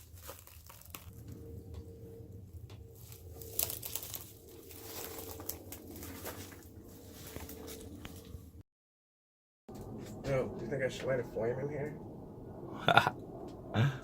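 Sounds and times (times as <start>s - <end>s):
debris crackling and crunching: 0.0s - 1.9s, 2.6s - 8.5s.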